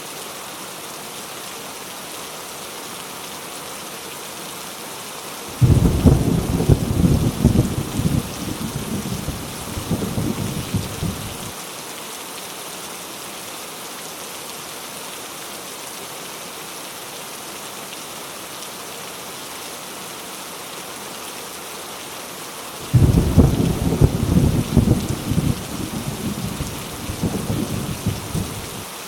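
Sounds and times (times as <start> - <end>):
heavy rain falling: 0.1 - 14.6, 16.6 - 29.0
rumble of thunder: 5.6 - 11.5, 22.9 - 28.8.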